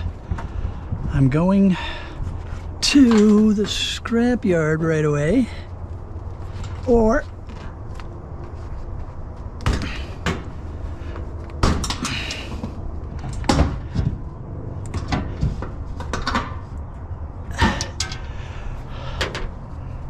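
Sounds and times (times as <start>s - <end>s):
steady low rumble: 0.0s - 20.0s
knocks and clunks: 11.5s - 14.3s.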